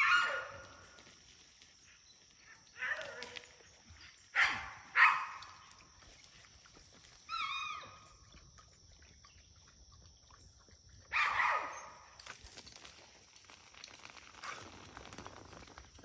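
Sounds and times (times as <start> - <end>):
dog barking: 0.0 - 0.6, 4.4 - 5.4, 11.1 - 11.9.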